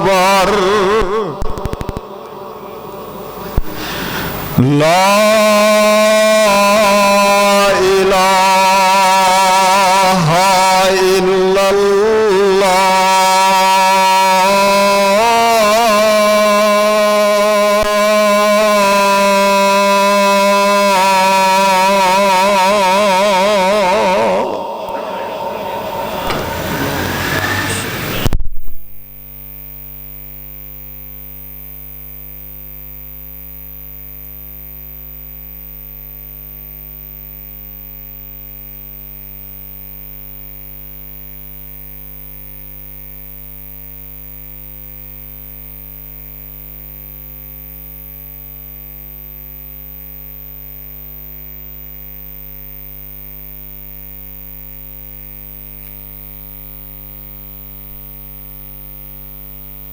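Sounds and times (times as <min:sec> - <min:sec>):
electrical mains hum: 0:00.0 - 0:07.6, 0:22.9 - 0:39.6.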